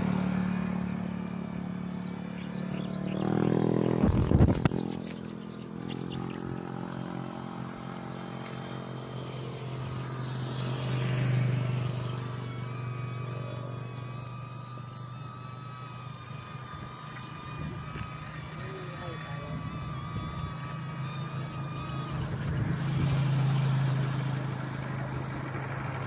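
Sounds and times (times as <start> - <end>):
vehicle passing: 0.0 - 13.7
thin steady whine: 0.0 - 26.0
vehicle engine running: 0.0 - 26.0.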